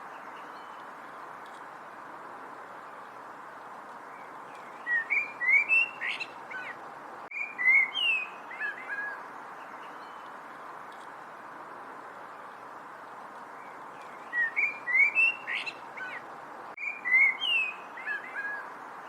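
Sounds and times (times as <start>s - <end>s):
background hiss: 0.0s - 19.0s
songbird warbling: 4.2s - 10.3s, 13.6s - 18.6s.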